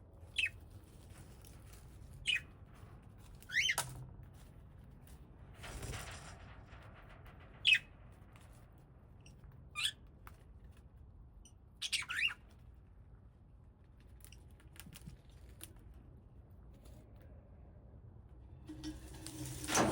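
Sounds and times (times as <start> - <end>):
parrots squawking: 11.8 - 12.4.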